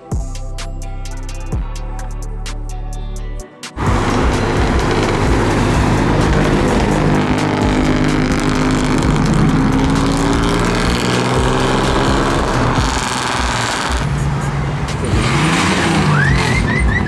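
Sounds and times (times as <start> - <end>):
car engine running: 3.8 - 17.0.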